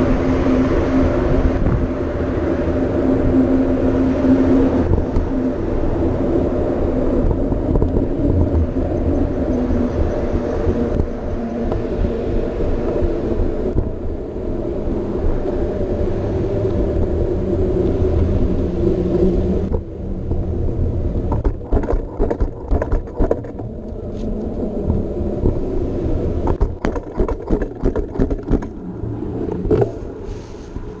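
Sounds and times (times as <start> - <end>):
bike tyres rolling: 0.0 - 31.0
bike rattling and knocking: 21.2 - 23.7, 26.4 - 28.8.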